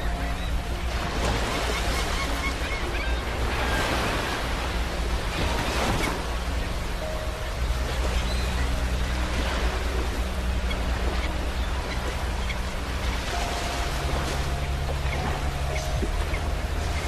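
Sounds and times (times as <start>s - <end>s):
sea waves breaking on beach: 0.0s - 17.0s.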